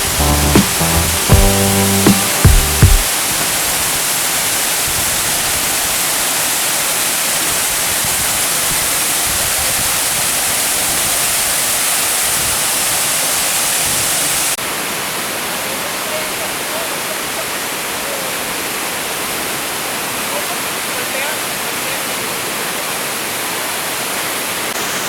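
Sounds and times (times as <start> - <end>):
music notes: 0.0 - 3.1
waterfall rushing: 0.0 - 25.0.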